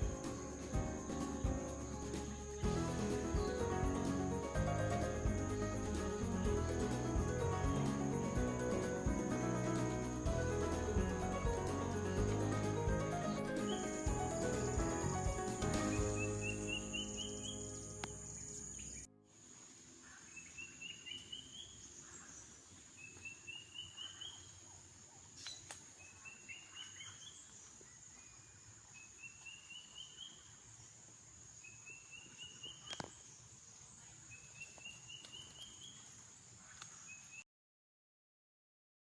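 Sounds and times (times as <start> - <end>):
bird calling rising notes: 0.0 - 19.1
background music: 0.0 - 19.2
insect drone: 0.0 - 37.4.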